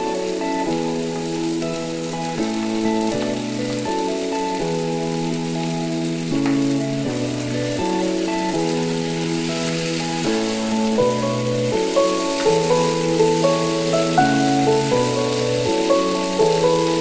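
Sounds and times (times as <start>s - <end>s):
background music of sustained chords: 0.0s - 17.0s
food frying in oil: 0.0s - 17.0s.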